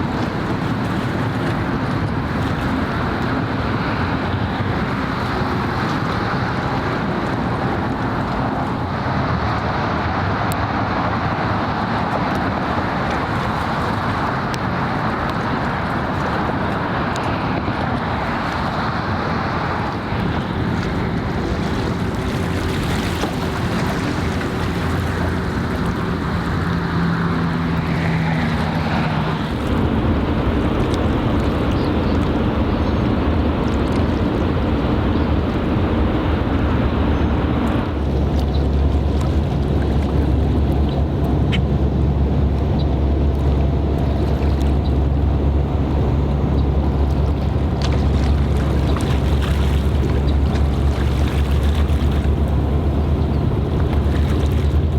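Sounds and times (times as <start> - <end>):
boat engine drone: 0.0 - 54.9
wind noise on microphone: 0.0 - 54.9.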